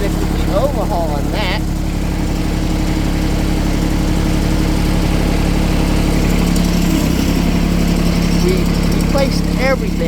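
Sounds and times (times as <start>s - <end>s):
lawn tractor diesel engine running: 0.0s - 10.0s.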